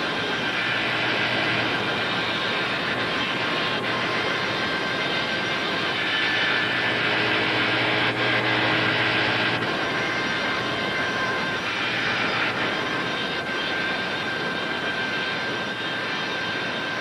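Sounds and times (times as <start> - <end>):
power saw cutting wood: 0.0 - 13.4
tape hiss: 0.0 - 17.0.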